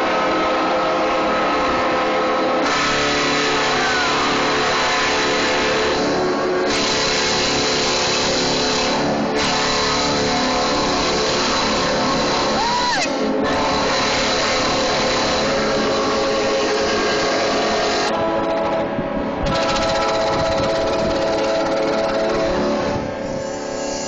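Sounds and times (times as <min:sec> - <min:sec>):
loud steady engine noise: 0:00.0 - 0:24.0
rushing hiss: 0:23.3 - 0:24.0.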